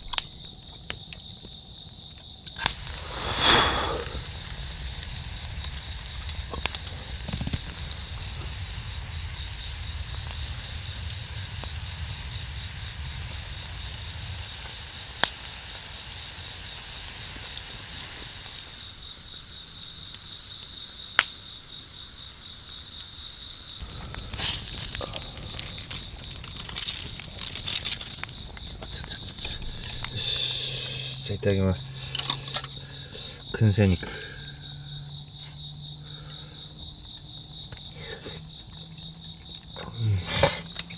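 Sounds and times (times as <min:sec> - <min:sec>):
campfire crackling pops: 0:00.0 - 0:21.5, 0:23.8 - 0:34.5
insects chirring: 0:00.0 - 0:40.9.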